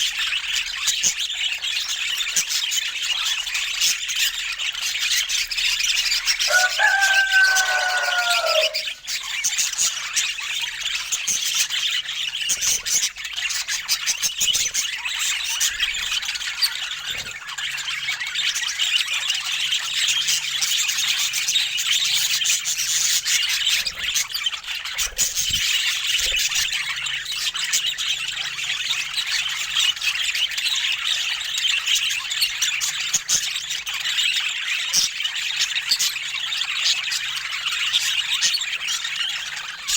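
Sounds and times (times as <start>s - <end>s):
budgerigars chattering: 0.0s - 39.9s
drawn-out bird call: 6.5s - 9.0s.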